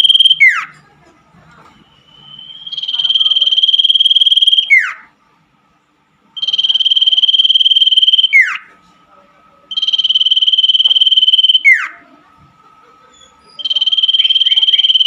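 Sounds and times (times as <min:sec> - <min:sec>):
bird buzzy trill: 0:00.0 - 0:00.8, 0:02.1 - 0:05.1, 0:06.4 - 0:08.7, 0:09.7 - 0:12.0, 0:13.4 - 0:15.0.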